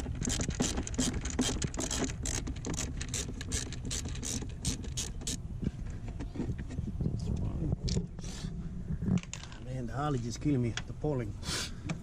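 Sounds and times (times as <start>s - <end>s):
ratchet tool clicking: 0.0s - 5.4s.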